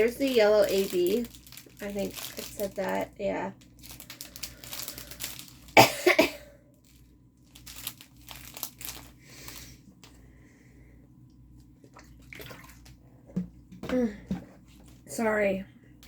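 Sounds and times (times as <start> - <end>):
plastic crinkling: 0.0 - 5.9, 6.8 - 10.2
person clearing throat: 5.8 - 6.5.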